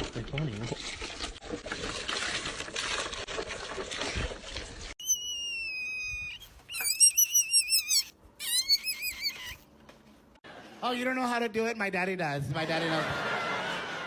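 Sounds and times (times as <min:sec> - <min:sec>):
high whistle-like animal call: 0:05.0 - 0:09.6
warbling high-pitched animal calls: 0:05.0 - 0:09.6.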